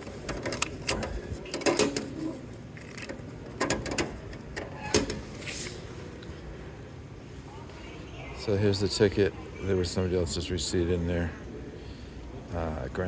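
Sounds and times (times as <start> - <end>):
ticket machine clicks and clunks: 0.0 - 2.4, 3.5 - 5.2.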